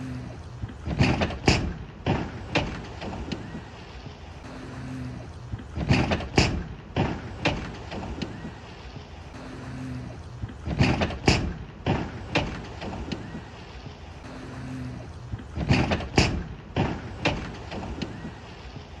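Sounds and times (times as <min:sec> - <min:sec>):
loud thuds and crashes: 0:00.8 - 0:03.3, 0:05.7 - 0:08.2, 0:10.6 - 0:13.1, 0:15.5 - 0:18.0.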